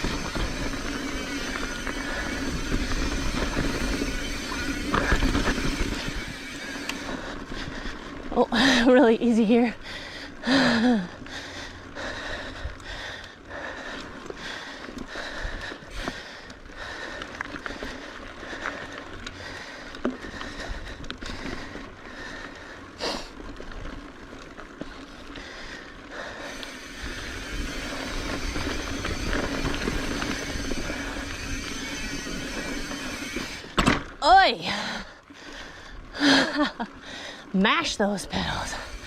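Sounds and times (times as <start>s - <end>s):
wind noise on microphone: 0.0s - 8.0s, 26.9s - 34.0s
bike rattling over rocks: 0.0s - 11.8s, 13.8s - 34.5s, 37.6s - 39.0s
bike tyres on dirt: 0.0s - 39.0s.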